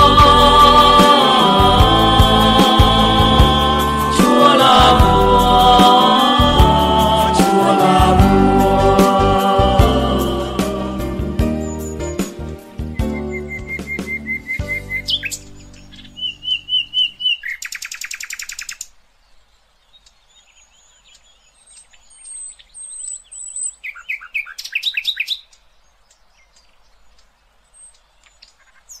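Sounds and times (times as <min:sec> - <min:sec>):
music: 0:00.0 - 0:16.6
songbirds calling: 0:11.5 - 0:29.0.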